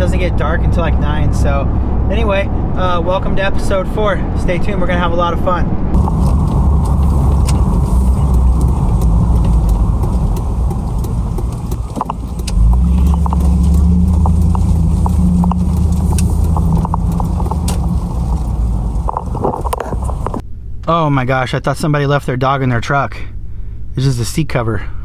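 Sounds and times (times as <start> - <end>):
truck cabin road and engine rumble: 0.0 - 5.2, 5.8 - 20.4
light clicks: 6.0 - 20.4.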